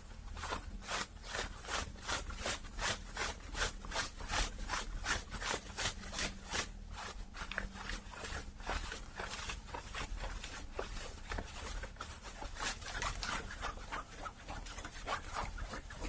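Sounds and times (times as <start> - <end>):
scratching on hat fabric: 0.0 - 16.0.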